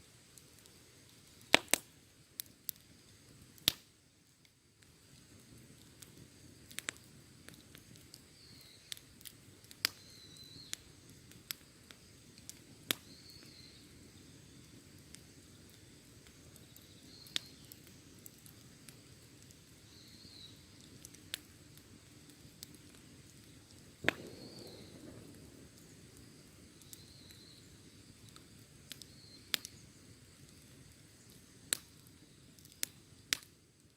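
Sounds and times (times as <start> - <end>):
wood fire crackling: 0.0 - 33.9
faint high chirp: 9.9 - 10.8, 13.0 - 14.8, 16.8 - 17.7, 19.8 - 20.7, 26.8 - 27.8.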